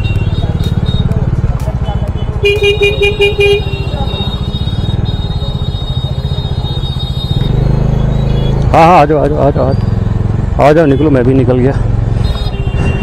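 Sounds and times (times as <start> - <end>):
motorcycle engine running: 0.0 - 13.0
vehicle horn beeping: 1.8 - 8.6, 12.2 - 13.0.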